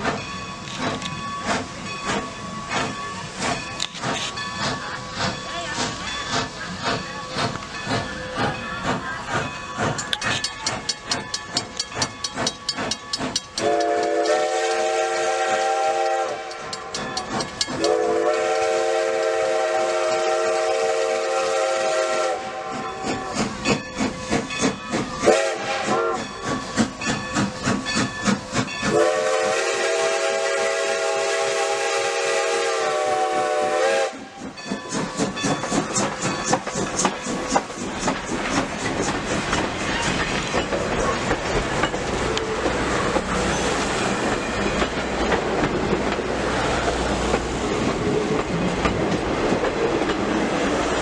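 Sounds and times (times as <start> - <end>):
steam locomotive exhaust chuffs: 0.0 - 51.0
train chime whistle: 10.3 - 24.2, 24.8 - 35.6.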